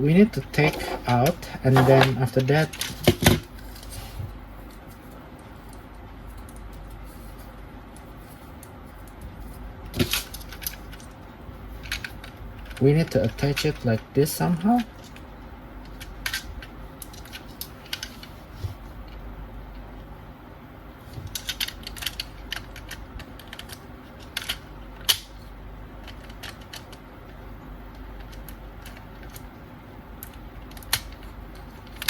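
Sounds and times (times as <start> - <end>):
plastic toy parts clicking: 21.3 - 25.3, 26.0 - 27.4, 28.0 - 29.5, 30.2 - 32.0.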